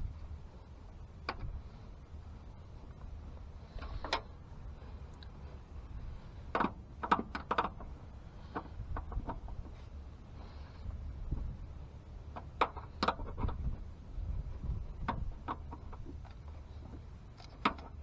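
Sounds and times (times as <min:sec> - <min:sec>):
wind rumble on microphone: 0:00.0 - 0:18.0
clicks and knocks of parts handled: 0:06.5 - 0:09.8, 0:12.3 - 0:13.8, 0:15.0 - 0:18.0.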